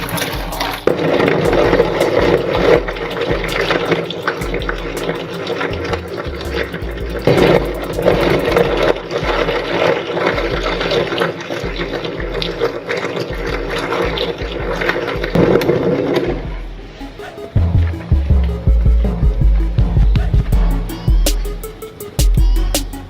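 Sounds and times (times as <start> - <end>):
wet crackling crunching: 0.0 - 16.5.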